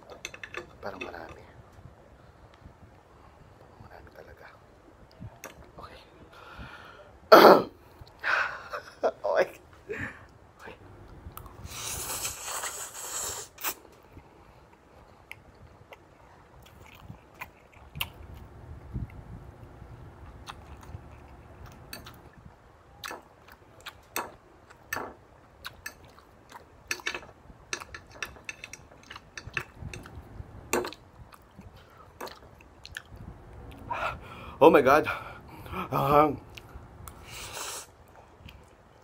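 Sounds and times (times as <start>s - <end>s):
man slurping noodles: 11.6s - 13.8s, 37.2s - 37.9s
chewing with wet mouth smacks: 15.2s - 18.4s, 20.4s - 22.3s, 25.6s - 26.7s, 30.8s - 33.9s.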